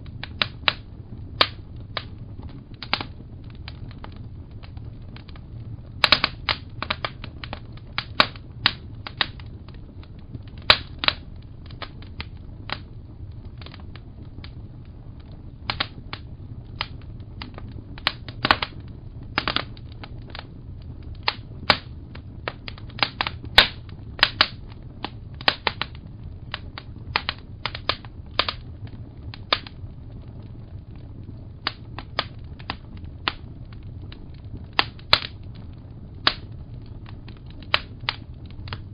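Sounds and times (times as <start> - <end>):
low rumble of fire: 0.0 - 38.9
wood fire crackling: 0.0 - 38.9.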